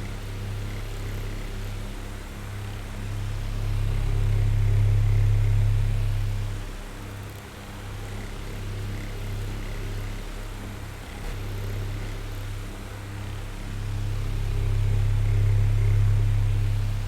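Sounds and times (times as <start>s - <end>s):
fan motor hum: 0.0s - 17.0s.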